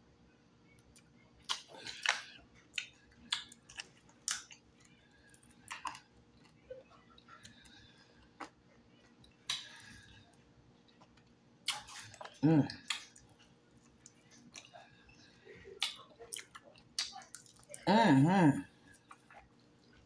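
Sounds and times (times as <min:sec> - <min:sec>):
crunchy food chewing: 0:00.8 - 0:17.8.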